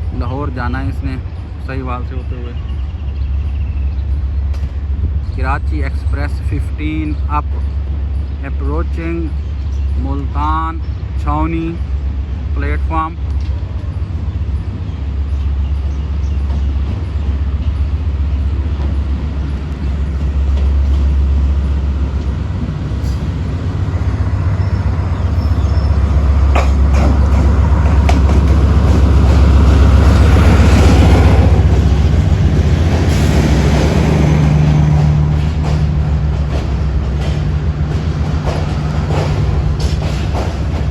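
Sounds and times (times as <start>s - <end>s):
diesel locomotive engine rumble: 0.0s - 40.9s
train rolling noise: 0.0s - 40.9s
wheels clicking over rail joints: 26.0s - 40.9s.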